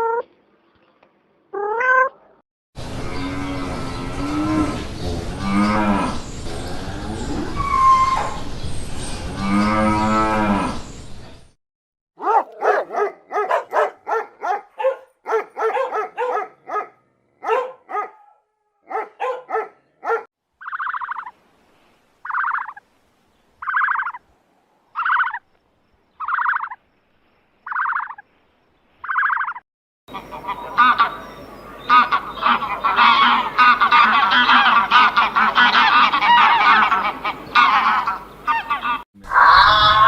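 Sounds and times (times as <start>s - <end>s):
dog barking: 12.2s - 20.3s
repeating animal call: 20.6s - 21.3s, 25.0s - 25.4s, 26.2s - 26.8s, 27.7s - 28.2s, 29.1s - 31.2s, 31.9s - 40.0s.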